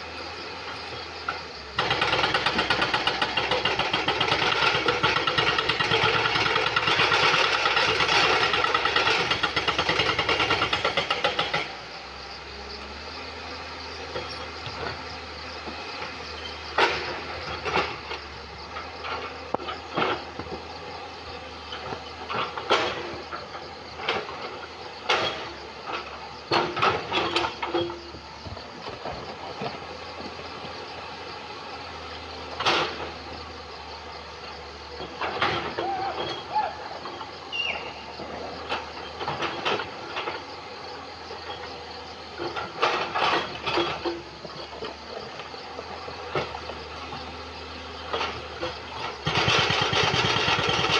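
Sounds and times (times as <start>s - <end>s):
diesel engine running: 0.0s - 50.9s
hydraulic breaker hammering stone: 1.8s - 11.8s, 49.1s - 50.9s.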